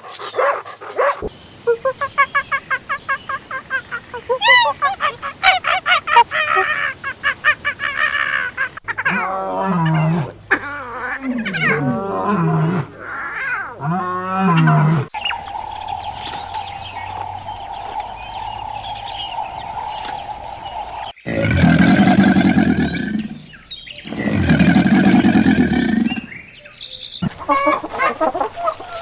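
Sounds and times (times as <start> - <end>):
short chirping animal calls: 0.0 - 11.9, 14.6 - 21.4
long rising and falling calls: 0.1 - 21.2
high-pitched hum: 15.2 - 21.1.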